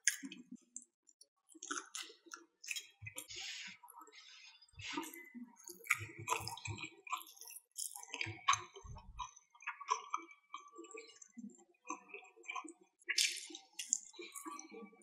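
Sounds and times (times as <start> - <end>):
person chewing food: 1.6 - 3.5, 4.8 - 11.1, 11.9 - 14.6.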